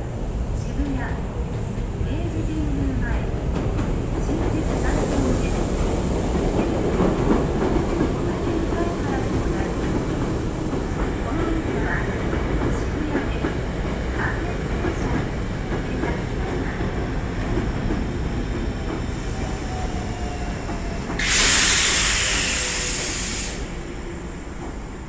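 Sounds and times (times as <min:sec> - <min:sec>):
train rumbling: 0:00.0 - 0:25.0
air hissing: 0:19.7 - 0:24.1.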